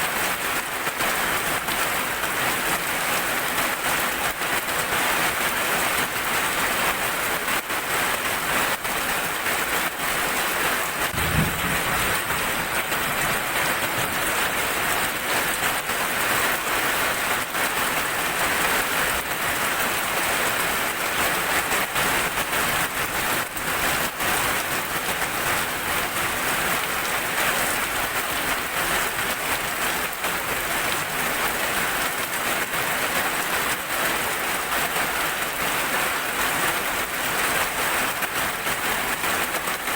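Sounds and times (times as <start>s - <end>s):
heavy rain: 0.0s - 39.9s
low rumble: 11.1s - 14.2s.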